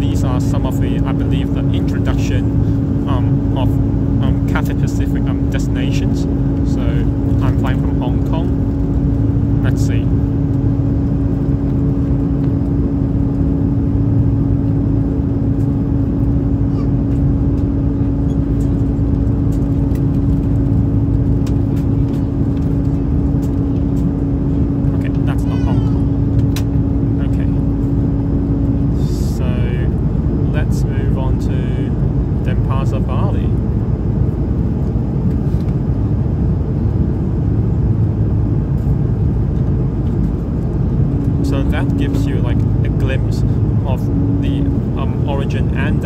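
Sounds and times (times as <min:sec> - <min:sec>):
airplane cabin engine rumble: 0:00.0 - 0:46.0.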